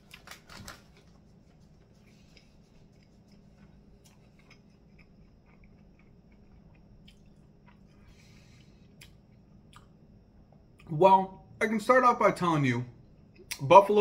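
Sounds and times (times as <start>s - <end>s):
low room hum: 0.0s - 14.0s
mouth clicks and smacks chewing: 2.3s - 7.9s.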